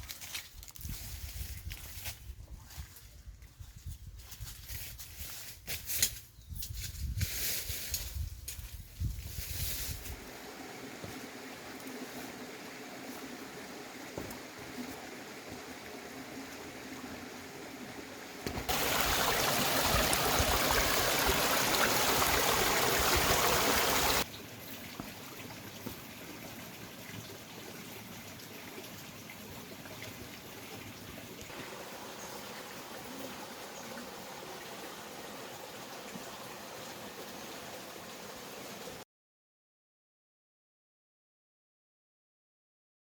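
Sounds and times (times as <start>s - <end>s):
loud rushing water: 10.2s - 24.3s, 31.5s - 39.0s
stream water trickling: 10.2s - 39.0s.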